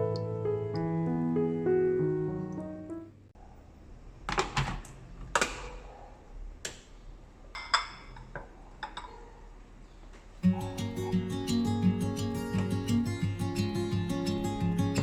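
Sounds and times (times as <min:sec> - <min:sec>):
acoustic guitar music: 0:10.4 - 0:15.0.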